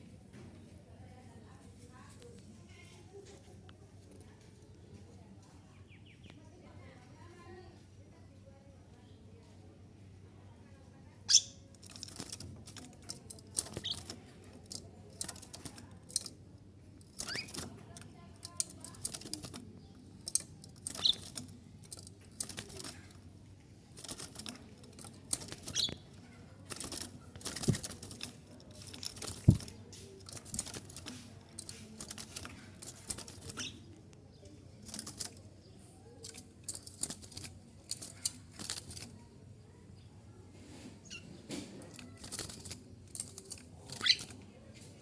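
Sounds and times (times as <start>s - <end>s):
high bird chirps: 11.3s - 11.6s, 20.8s - 21.5s, 25.4s - 26.2s, 33.3s - 33.9s, 43.9s - 44.4s
bird wings flapping: 11.8s - 16.3s, 17.1s - 19.6s, 20.3s - 23.2s, 23.9s - 33.8s, 34.8s - 35.4s, 36.2s - 39.1s, 41.8s - 44.4s.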